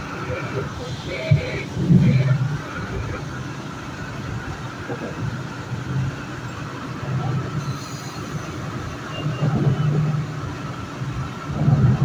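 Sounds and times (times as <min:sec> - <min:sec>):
train wheels rumbling on rail: 0:00.0 - 0:12.0
faint high squeal: 0:07.6 - 0:10.0.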